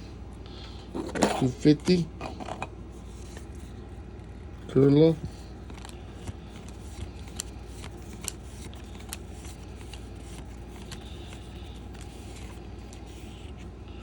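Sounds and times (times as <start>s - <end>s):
trading cards rustling: 0.9s - 13.9s.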